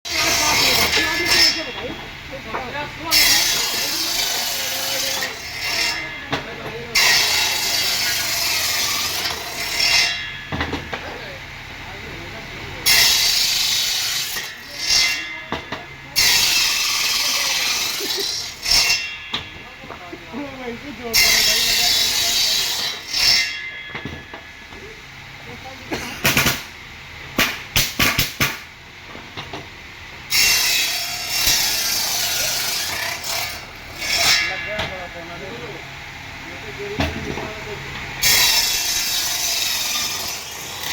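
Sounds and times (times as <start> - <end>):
tool rasping wood: 0.1 - 1.6, 3.1 - 6.1, 21.2 - 23.4.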